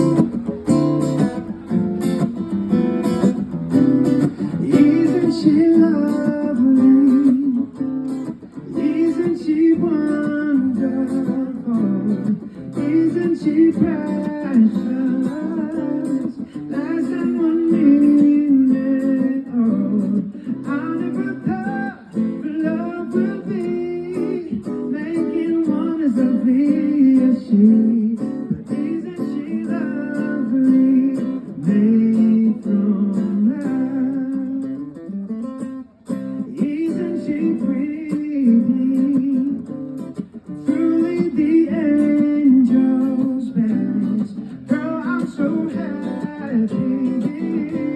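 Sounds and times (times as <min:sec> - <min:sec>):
acoustic guitar plucked and strummed: 0:00.0 - 0:47.9
person singing: 0:04.3 - 0:35.0, 0:40.6 - 0:47.9.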